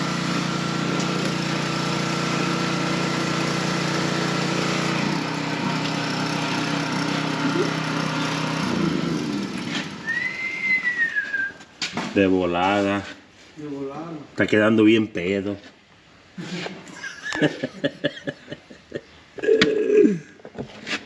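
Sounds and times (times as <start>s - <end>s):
engine running: 0.0s - 11.1s
high whistling note: 10.0s - 11.6s.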